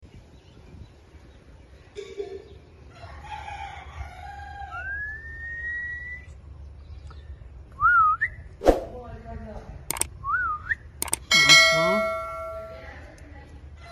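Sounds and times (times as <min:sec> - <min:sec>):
rooster crowing: 0:02.9 - 0:05.2.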